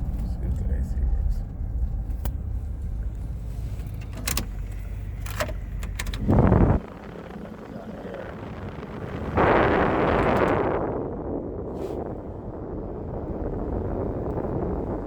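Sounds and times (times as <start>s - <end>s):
air conditioning blower rushing: 3.8s - 8.3s.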